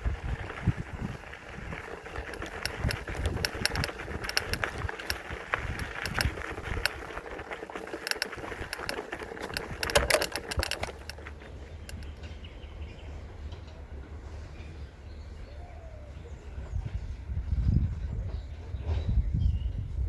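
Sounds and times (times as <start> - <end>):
bike chain and frame rattling: 0.0 - 12.2
tyre noise: 0.0 - 12.2.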